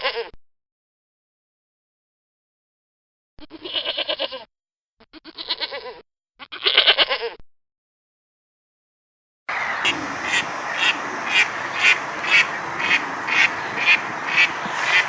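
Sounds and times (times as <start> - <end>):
background hiss: 9.5 - 15.0
duck quacking: 9.5 - 15.0.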